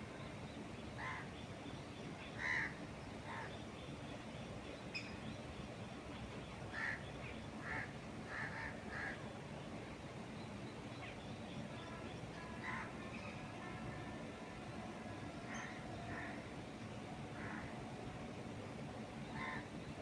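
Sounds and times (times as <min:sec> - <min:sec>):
steady background hiss: 0:00.0 - 0:20.0
bird calling: 0:11.0 - 0:20.0.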